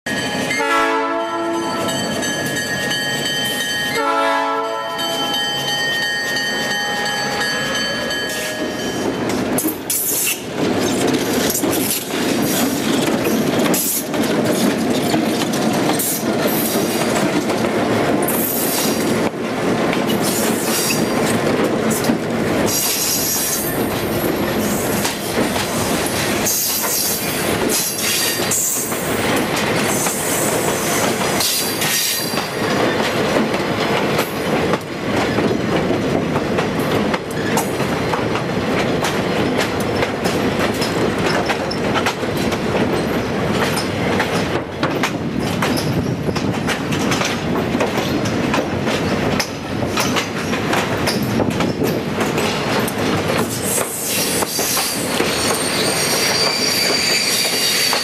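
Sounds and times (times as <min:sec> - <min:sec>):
locomotive chime air horn: 0:00.1 - 0:02.3, 0:03.5 - 0:05.8
wheels clicking over rail joints: 0:06.2 - 0:58.0
wheels squealing: 0:53.7 - 0:58.0.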